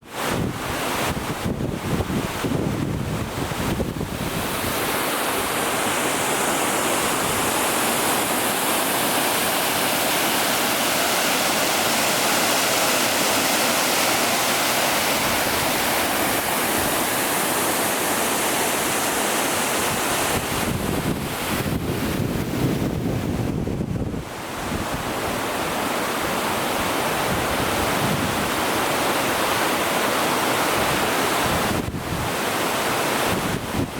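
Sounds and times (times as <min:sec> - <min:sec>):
waterfall rushing: 0:00.0 - 0:23.1, 0:24.2 - 0:33.9
wind buffeting on microphone: 0:00.1 - 0:05.8, 0:19.8 - 0:28.7, 0:30.8 - 0:32.4, 0:33.2 - 0:33.9.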